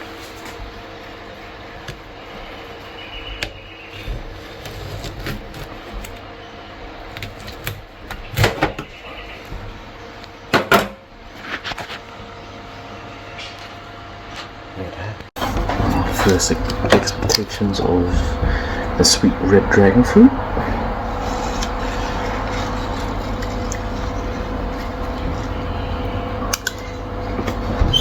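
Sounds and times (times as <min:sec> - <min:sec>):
steady low hum: 0:12.1 - 0:28.0.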